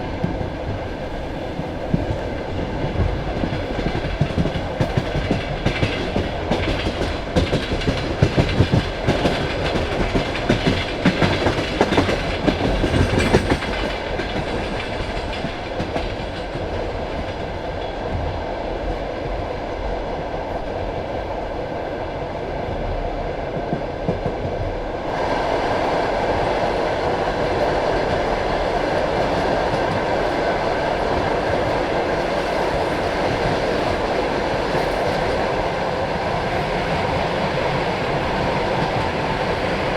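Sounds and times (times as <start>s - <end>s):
train carriage rolling rumble: 0.0s - 39.9s
train wheels clacking over rail joints: 1.9s - 18.3s.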